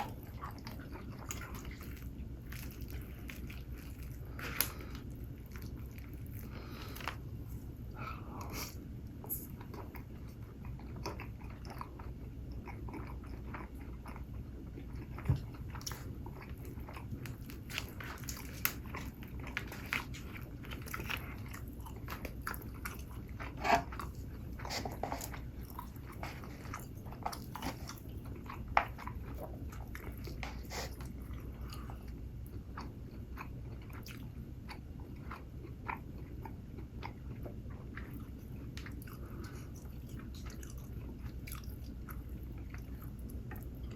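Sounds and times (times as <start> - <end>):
person chewing food: 0.0 - 43.9
crunchy clicks and crackles: 15.2 - 30.6.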